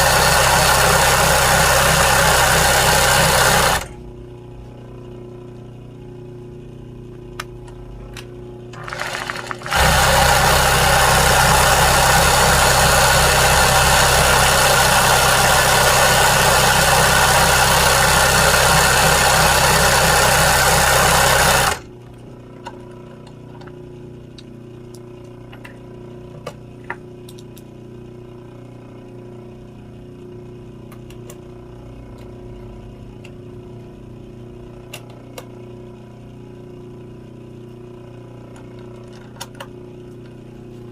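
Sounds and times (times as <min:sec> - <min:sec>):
sewing machine stitching: 0:00.0 - 0:04.0, 0:08.8 - 0:21.9.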